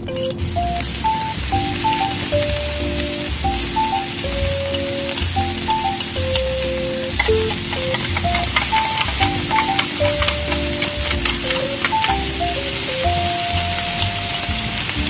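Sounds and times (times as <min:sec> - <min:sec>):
simple melody with soft chords: 0:00.0 - 0:15.0
garlic sizzling in butter: 0:00.7 - 0:15.0
metal spoon stirring in pan: 0:04.8 - 0:12.8.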